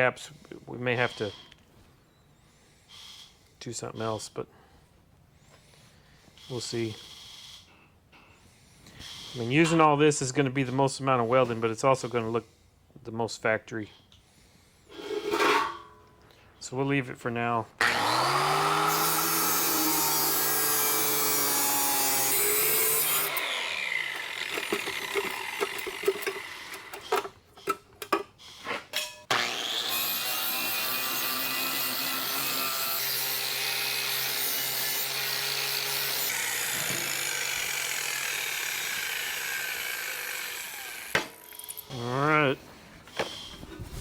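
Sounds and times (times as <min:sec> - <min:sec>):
power tool cutting sheet steel: 0:17.8 - 0:27.1, 0:29.3 - 0:41.8.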